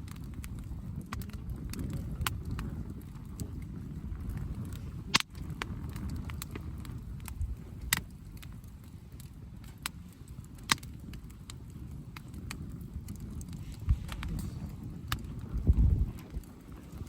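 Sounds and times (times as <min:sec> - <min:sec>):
campfire crackling: 0:00.0 - 0:17.0
low steady rumble: 0:00.0 - 0:17.0
sharp pops: 0:05.1 - 0:05.4.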